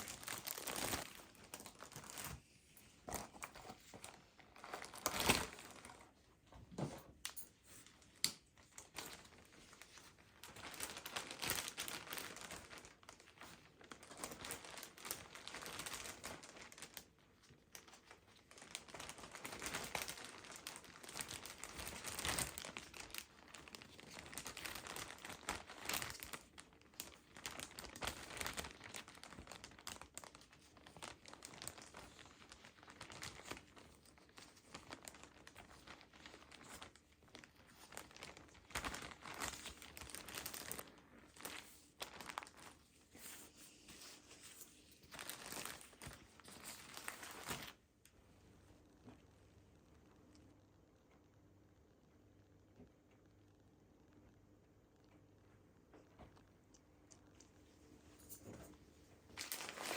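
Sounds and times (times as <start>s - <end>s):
paper or plastic crinkling: 0.0s - 6.3s, 7.2s - 47.8s, 59.3s - 59.9s.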